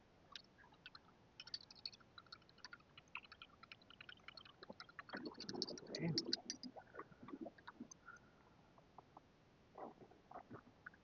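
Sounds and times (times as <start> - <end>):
water lapping and dripping: 0.3 - 8.4.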